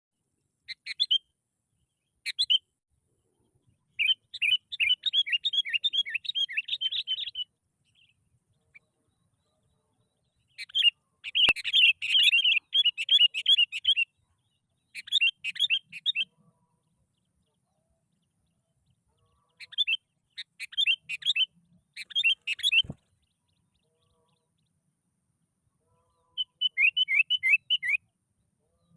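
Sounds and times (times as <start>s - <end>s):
bulbul chattering song: 0.7s - 1.3s, 3.9s - 9.4s, 10.3s - 14.1s, 14.9s - 16.4s, 19.4s - 23.8s, 26.3s - 28.0s.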